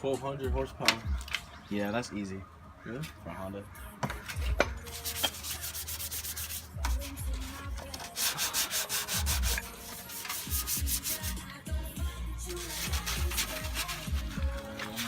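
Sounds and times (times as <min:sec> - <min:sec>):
sandpaper rubbing on metal: 0:04.8 - 0:11.6, 0:12.4 - 0:15.0.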